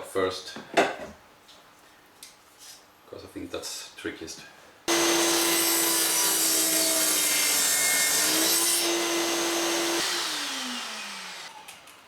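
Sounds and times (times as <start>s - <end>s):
electric saw cutting wood: 4.9s - 11.9s
saw motor spinning down: 8.8s - 11.8s.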